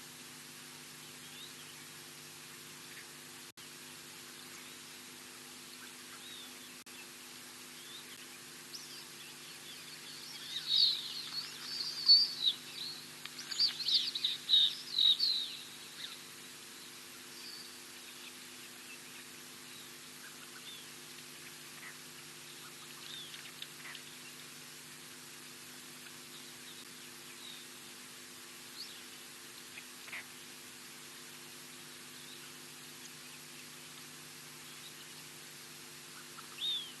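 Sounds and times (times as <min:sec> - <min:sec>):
faint low hum: 0:00.0 - 0:37.0
birds chirping: 0:02.8 - 0:24.7, 0:31.6 - 0:37.0.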